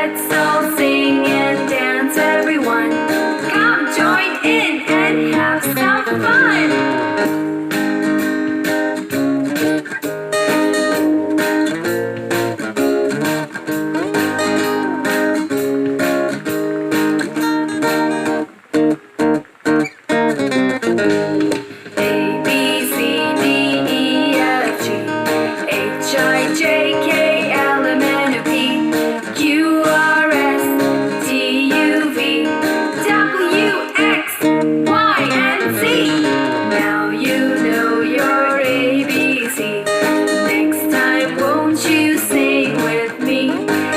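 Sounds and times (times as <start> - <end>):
person singing melody: 0.0 - 9.4, 21.2 - 43.9
strummed acoustic guitar: 0.0 - 43.9.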